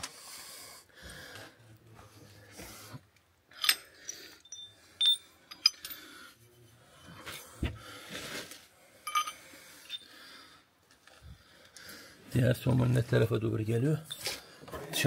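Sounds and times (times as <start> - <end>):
metal tools clinking: 3.5 - 6.2, 9.0 - 10.1, 14.0 - 14.4.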